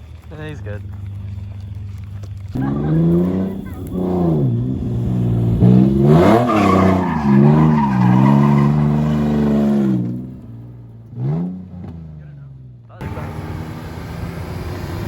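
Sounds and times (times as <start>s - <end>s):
tyre squeal: 0.0s - 10.4s
car engine revving: 0.0s - 15.0s.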